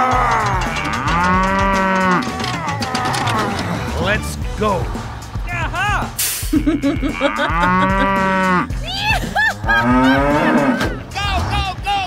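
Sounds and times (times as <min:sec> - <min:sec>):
cows mooing: 0:00.0 - 0:04.0, 0:06.6 - 0:08.8, 0:09.6 - 0:11.0.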